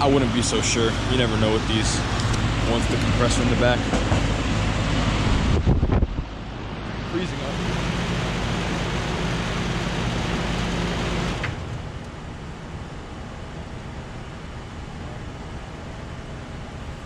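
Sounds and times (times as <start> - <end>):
compressor humming: 0.0 - 17.0
fan rushing: 0.0 - 17.0.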